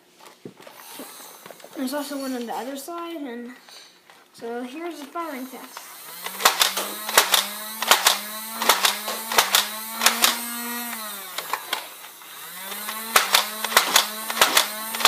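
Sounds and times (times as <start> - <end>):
toy blaster motor whirring: 0.6 - 2.5, 5.1 - 15.0
darts firing in sharp clacks: 6.2 - 10.6, 12.7 - 15.0.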